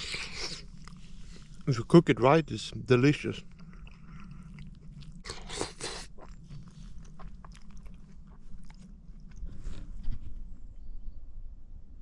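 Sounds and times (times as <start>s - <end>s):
person chewing and eating: 0.0s - 1.7s, 3.4s - 10.3s
steady low hum: 0.0s - 12.0s.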